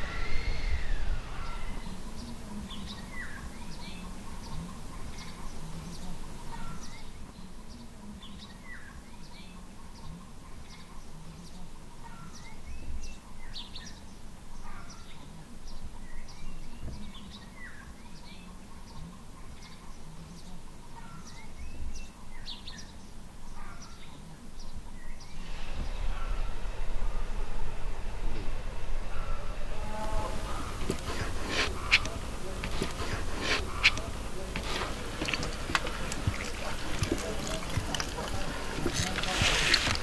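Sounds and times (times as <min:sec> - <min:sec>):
small birds chirping: 0:00.3 - 0:26.3, 0:29.9 - 0:40.0
low background rumble: 0:25.3 - 0:40.0.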